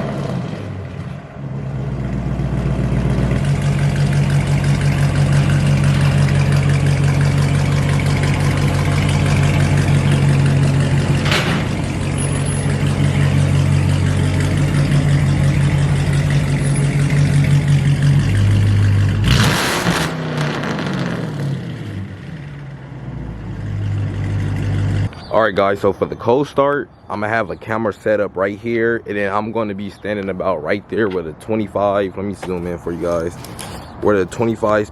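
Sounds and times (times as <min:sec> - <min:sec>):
car engine revving: 0:00.0 - 0:25.1
loud exhaust burst: 0:18.4 - 0:21.9.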